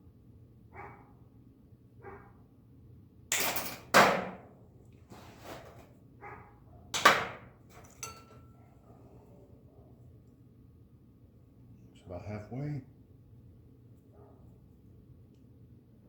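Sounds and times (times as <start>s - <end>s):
sharp metal snaps and knocks: 3.3s - 4.4s, 7.0s - 8.4s
thin metallic ring: 7.8s - 8.5s.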